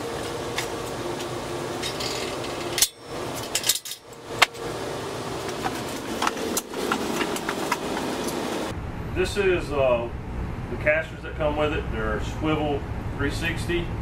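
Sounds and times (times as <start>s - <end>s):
steady hum: 0.0s - 14.0s
steel parts clinking: 1.8s - 4.6s.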